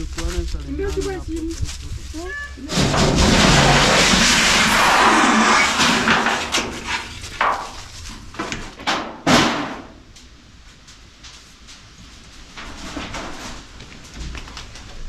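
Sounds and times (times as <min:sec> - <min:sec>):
knocks and bangs: 0:02.6 - 0:10.0
loud rushing noise: 0:02.7 - 0:07.4.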